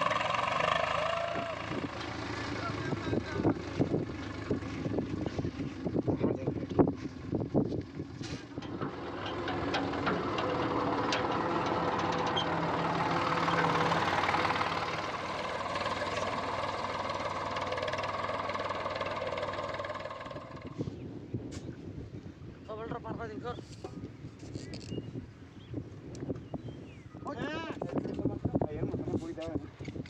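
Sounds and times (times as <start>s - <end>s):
tractor diesel engine running: 0.0s - 21.2s.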